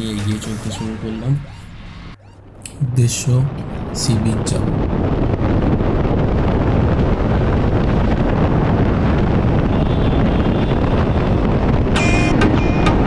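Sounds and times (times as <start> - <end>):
road noise: 0.0 - 5.8
wind buffeting microphone: 2.5 - 12.0.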